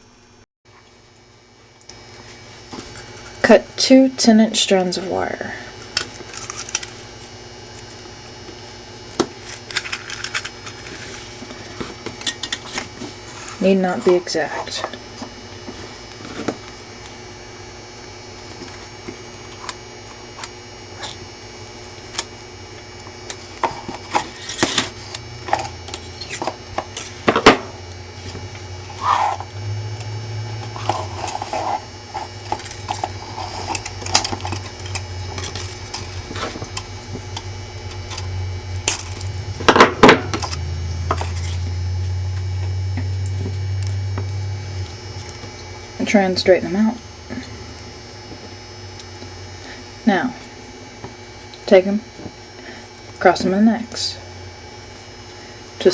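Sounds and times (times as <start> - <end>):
low mains hum: 0.0 - 55.9
wire rustles and clicks: 5.8 - 8.0, 9.3 - 13.1, 23.2 - 41.6.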